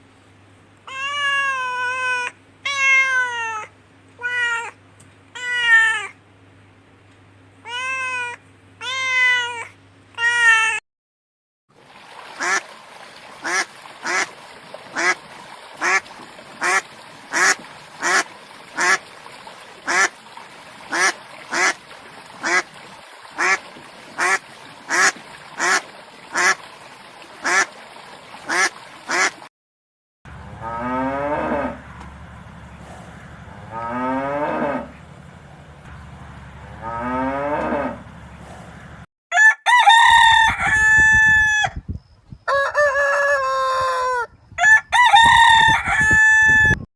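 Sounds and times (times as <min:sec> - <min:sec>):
cat meowing: 0:00.9 - 0:04.8, 0:07.6 - 0:10.8
duck quacking: 0:13.4 - 0:14.3, 0:15.0 - 0:15.2, 0:15.8 - 0:16.0, 0:16.6 - 0:18.2, 0:18.8 - 0:19.0, 0:19.9 - 0:20.1, 0:20.9 - 0:21.8, 0:22.4 - 0:22.7, 0:23.4 - 0:23.6, 0:24.2 - 0:26.6, 0:27.4 - 0:27.7, 0:28.5 - 0:29.4.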